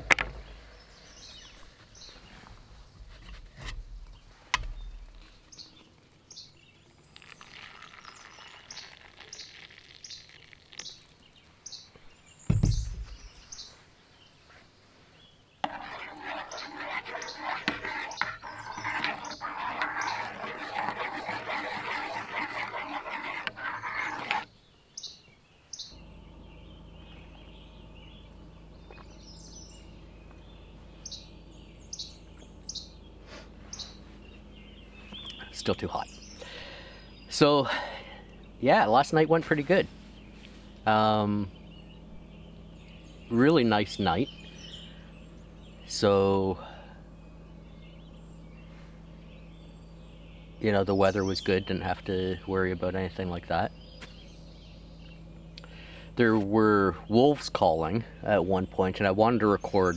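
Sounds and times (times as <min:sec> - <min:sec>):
small bird chirping: 0:04.0 - 0:20.6, 0:23.4 - 0:56.3
steady low hum: 0:11.1 - 0:59.9
loud low thump: 0:12.5 - 0:13.3.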